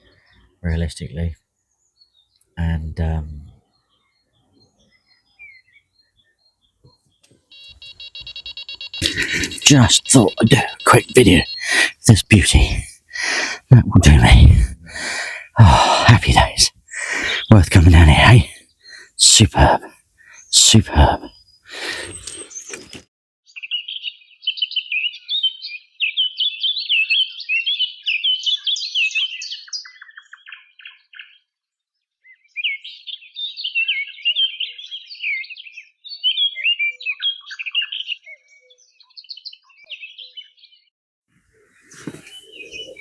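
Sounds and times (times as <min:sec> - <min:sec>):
songbird warbling: 0:41.7 - 0:43.0.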